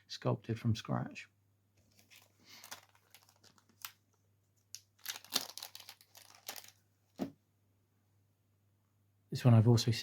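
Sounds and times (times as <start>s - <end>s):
packaging crinkling: 1.8s - 7.3s.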